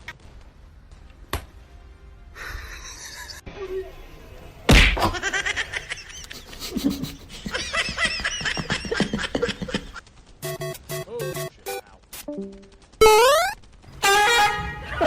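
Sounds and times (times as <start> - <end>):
person laughing: 2.4 - 3.4, 5.2 - 10.0.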